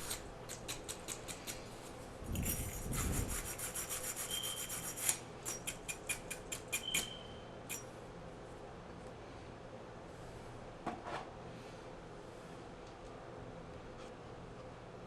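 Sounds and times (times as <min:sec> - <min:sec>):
wire brush scraping metal: 0:02.3 - 0:05.7.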